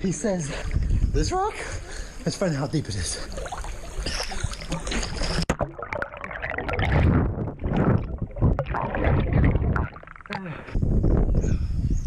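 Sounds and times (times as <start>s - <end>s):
wind buffeting microphone: 0.6s - 1.9s, 6.7s - 12.0s
water sloshing and splashing: 2.4s - 10.8s.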